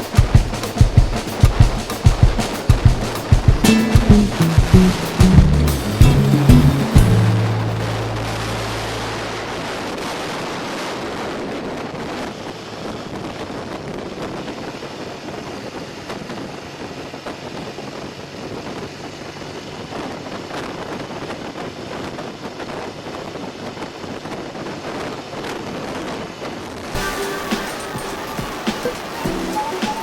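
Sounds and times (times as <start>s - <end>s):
motorcycle road noise: 14.4s - 26.9s.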